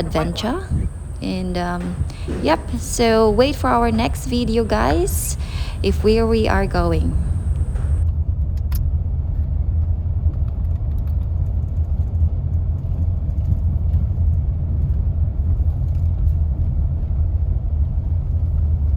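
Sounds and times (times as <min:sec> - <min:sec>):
car road and engine rumble: 0:00.0 - 0:08.0.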